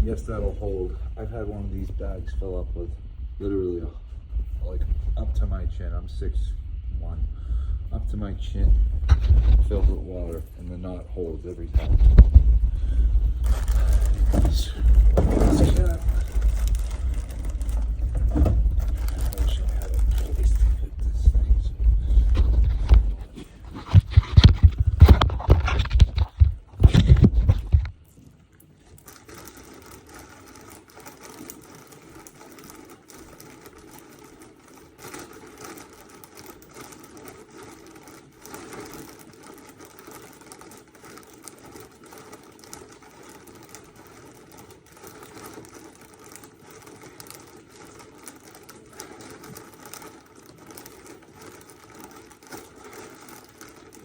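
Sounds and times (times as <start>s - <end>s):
plastic bag rustling: 11.6s - 54.0s
water draining into bag: 12.0s - 21.1s.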